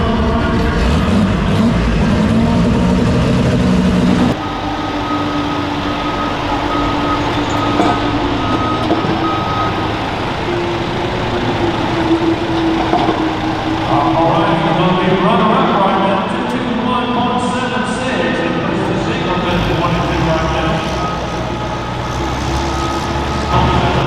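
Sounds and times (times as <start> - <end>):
lower engine sound: 0.0 - 24.0
tractor engine running hard: 0.0 - 24.0
high beeping tone: 4.3 - 17.3, 20.1 - 24.0.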